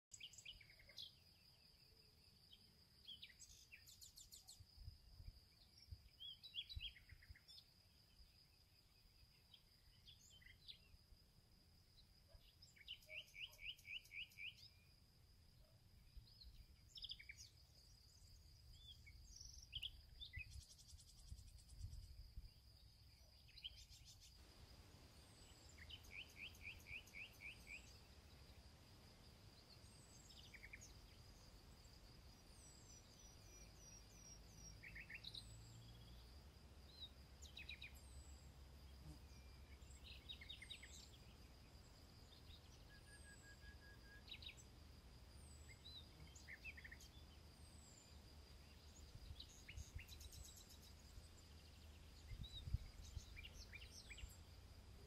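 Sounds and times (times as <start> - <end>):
wind rumble on microphone: 20.2 - 22.6, 52.1 - 53.8.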